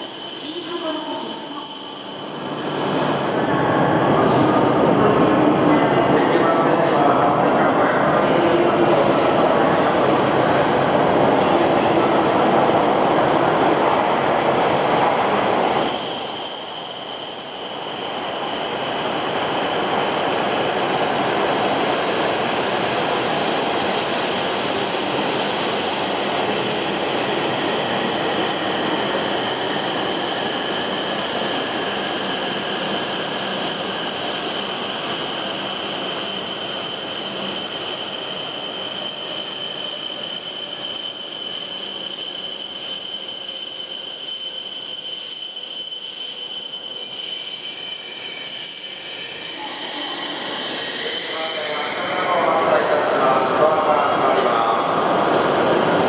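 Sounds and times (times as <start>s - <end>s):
high-pitched whine: 0.0s - 56.0s
train rushing past: 2.2s - 16.2s, 48.9s - 56.0s.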